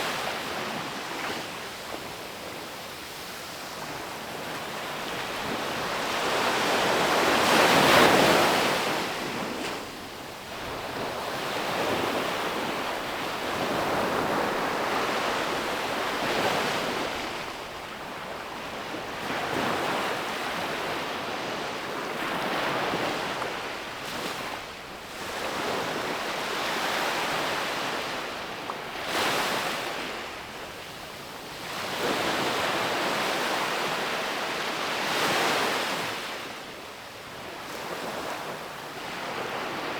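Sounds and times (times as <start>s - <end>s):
ocean waves breaking on beach: 0.0s - 30.8s.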